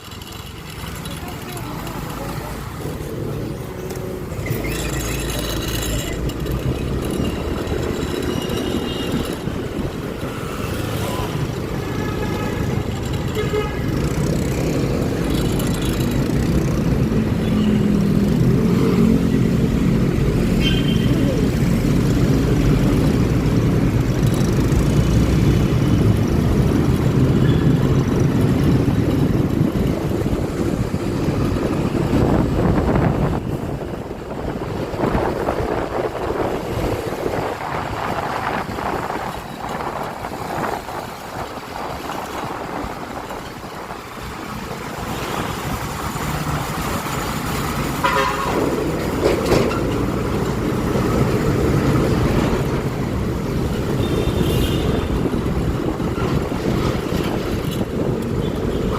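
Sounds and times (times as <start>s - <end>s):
scooter engine and road noise: 0.0s - 58.9s
vehicle horns tooting: 48.0s - 48.8s.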